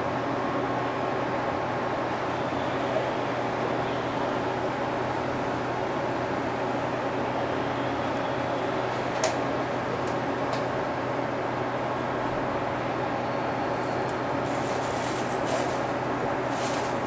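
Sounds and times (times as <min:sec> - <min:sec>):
air-conditioning hiss: 0:00.0 - 0:17.0.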